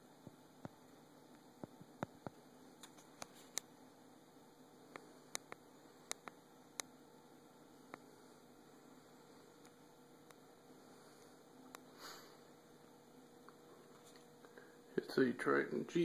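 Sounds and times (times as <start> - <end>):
faint room hum: 0.0 - 16.0
small sharp clicks: 0.6 - 3.7, 4.9 - 6.9.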